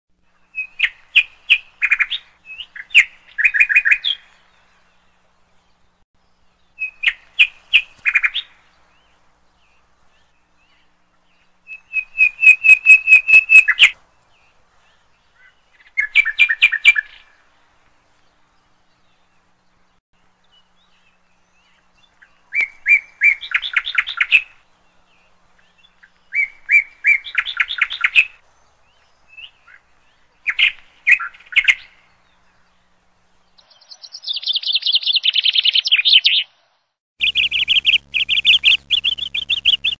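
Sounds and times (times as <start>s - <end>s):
bird chirping: 0.5s - 17.3s, 33.6s - 36.5s, 37.2s - 39.9s.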